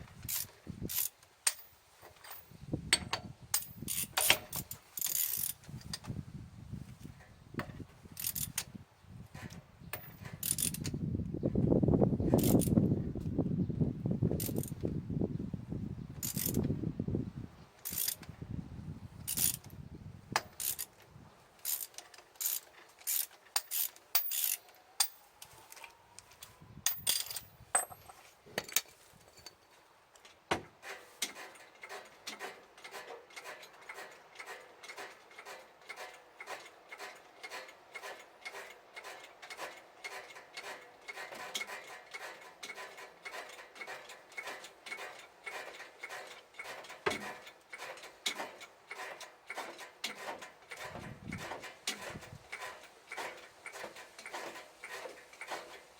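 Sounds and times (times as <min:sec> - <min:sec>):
hand tool clicking: 0:00.2 - 0:06.0, 0:17.8 - 0:18.3, 0:20.4 - 0:20.9, 0:21.6 - 0:28.9.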